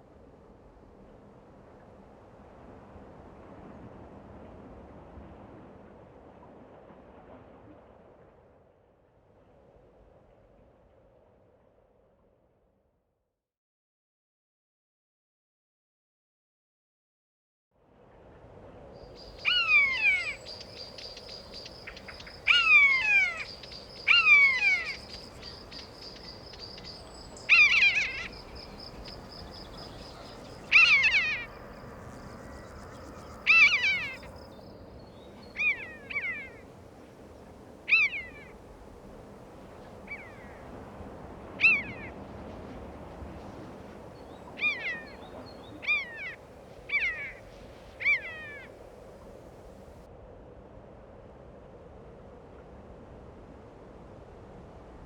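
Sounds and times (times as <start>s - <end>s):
bird calling with falling notes: 19.4s - 31.5s, 33.4s - 34.4s.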